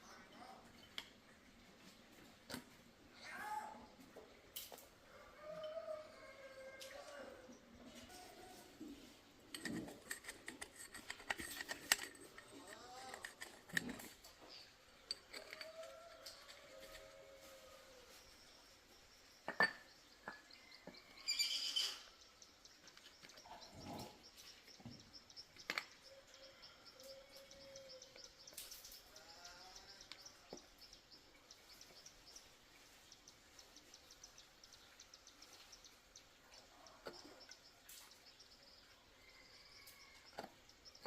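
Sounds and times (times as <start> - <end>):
sharp clicks and knocks: 9.5 - 17.0
insect high-pitched trill: 21.2 - 22.2.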